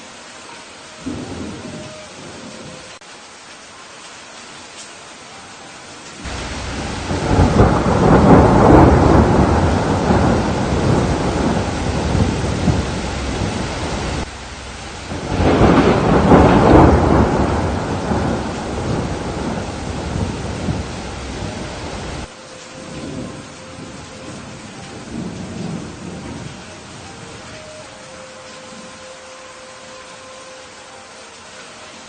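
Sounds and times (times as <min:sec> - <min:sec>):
steady rain: 0:00.0 - 0:32.0
thunder rolling: 0:01.0 - 0:03.0, 0:06.2 - 0:27.6.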